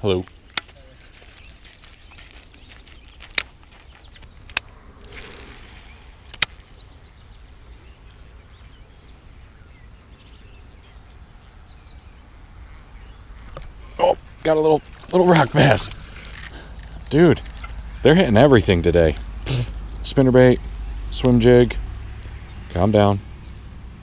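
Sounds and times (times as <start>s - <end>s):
low wind rumble: 0.0s - 24.0s
sharp clicks: 3.3s - 3.6s, 4.2s - 6.9s.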